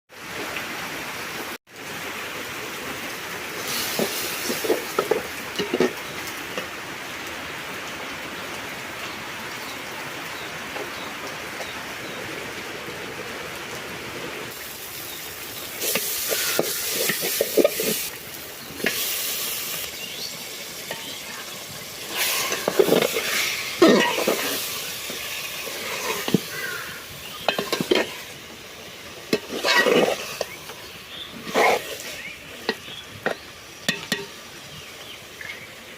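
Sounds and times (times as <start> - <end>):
food sizzling in a frying pan: 3.5 - 6.8, 14.5 - 35.8.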